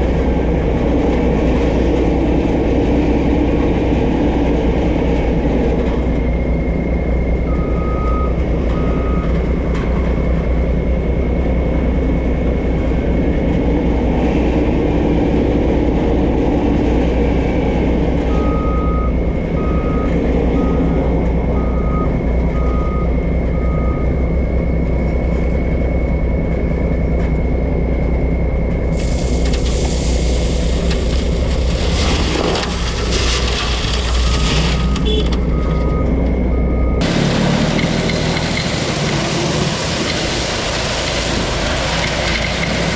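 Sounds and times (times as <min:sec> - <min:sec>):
diesel truck engine running: 0:00.0 - 0:42.9
loud hiss: 0:29.0 - 0:30.9.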